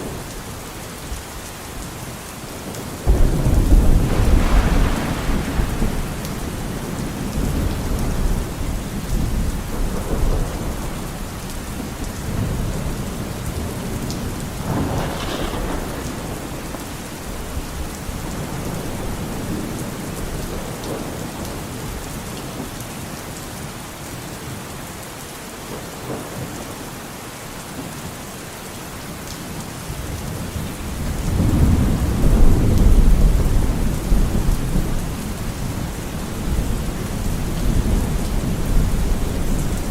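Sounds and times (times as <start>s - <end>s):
steady rain falling: 0.0s - 39.9s
rolling thunder: 3.0s - 21.3s, 30.6s - 39.9s.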